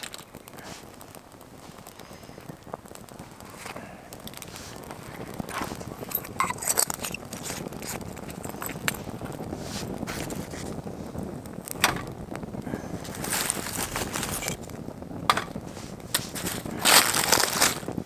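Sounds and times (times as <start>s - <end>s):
steady rustling: 1.6s - 18.0s
light clinks and knocks: 4.9s - 9.4s.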